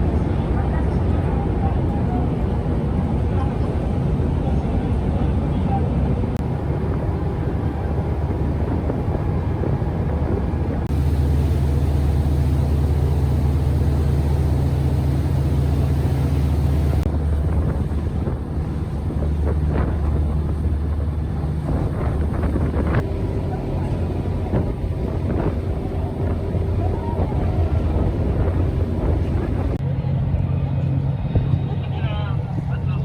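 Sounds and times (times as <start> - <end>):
wind buffeting microphone: 1.0 - 29.8
boat engine running: 2.0 - 29.8.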